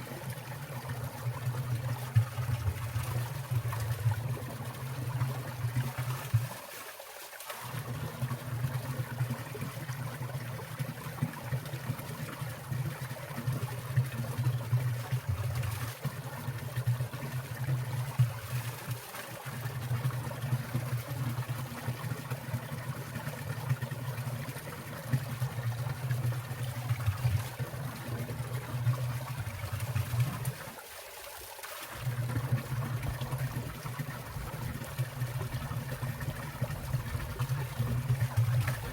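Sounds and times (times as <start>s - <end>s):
stream trickling and splashing: 0.0s - 38.9s.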